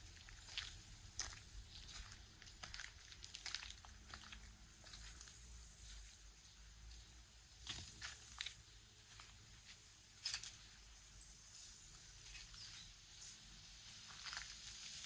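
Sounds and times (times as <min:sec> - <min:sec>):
quiet footsteps walking: 0:00.0 - 0:15.0
scuffing steps: 0:00.2 - 0:06.1.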